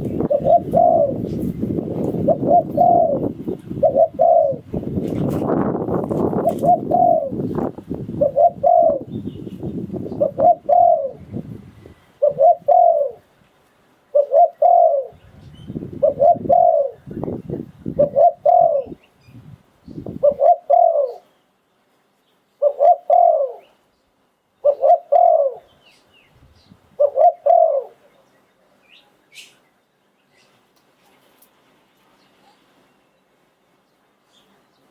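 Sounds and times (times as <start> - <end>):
dove cooing: 0.0 - 13.3, 14.1 - 19.0, 20.0 - 21.3, 22.6 - 23.7, 24.6 - 25.7, 26.9 - 28.1.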